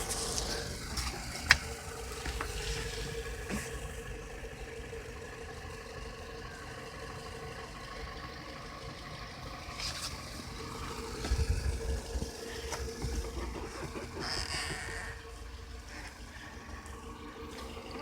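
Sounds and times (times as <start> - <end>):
boat engine cranking: 9.8 - 16.3.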